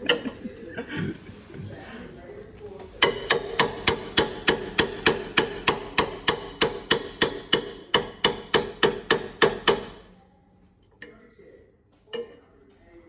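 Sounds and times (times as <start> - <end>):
hammer striking metal pipe: 3.0 - 10.1.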